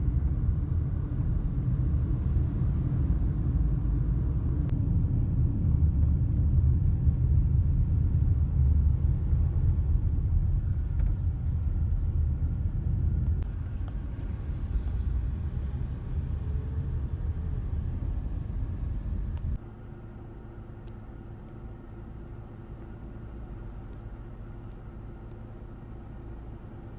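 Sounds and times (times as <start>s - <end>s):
heavy truck traffic rumble: 0.0s - 20.4s.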